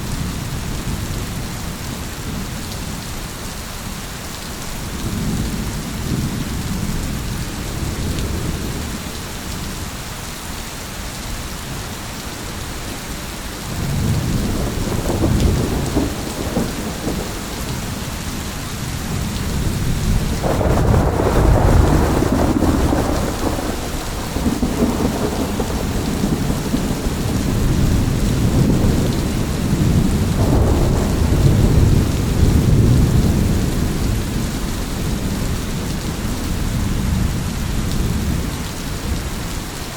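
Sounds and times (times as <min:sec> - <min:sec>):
heavy rain falling: 0:00.0 - 0:39.9
rolling thunder: 0:13.8 - 0:39.4.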